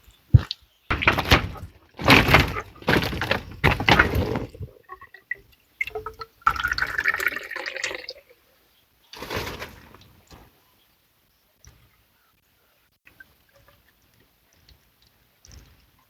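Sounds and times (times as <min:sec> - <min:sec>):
water dripping: 0:00.0 - 0:08.6, 0:13.0 - 0:16.0
water splashing and pouring: 0:00.3 - 0:08.4.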